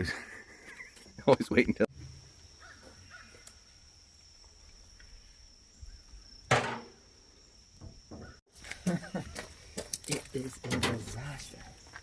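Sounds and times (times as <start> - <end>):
sharp knock: 6.5 - 7.0.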